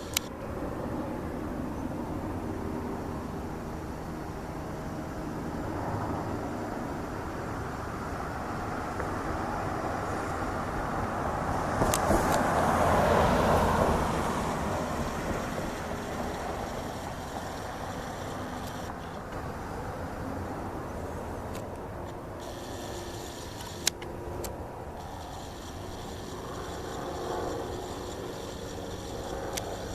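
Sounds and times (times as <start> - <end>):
short clicks: 0.0 - 0.3, 15.3 - 19.2, 21.5 - 29.9
vehicle passing by: 7.5 - 21.4.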